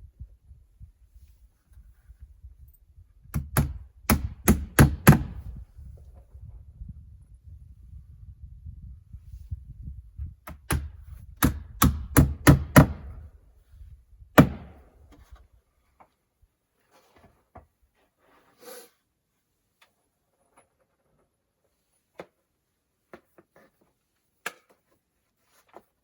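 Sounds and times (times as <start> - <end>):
hammer striking wood: 3.3 - 5.5, 10.5 - 13.2, 14.4 - 14.8.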